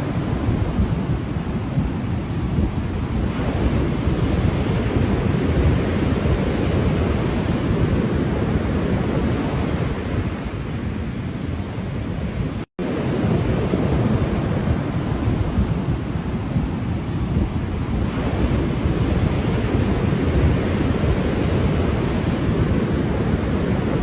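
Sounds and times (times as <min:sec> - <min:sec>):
ocean waves washing: 0:00.0 - 0:24.0
wind buffeting microphone: 0:00.0 - 0:24.0.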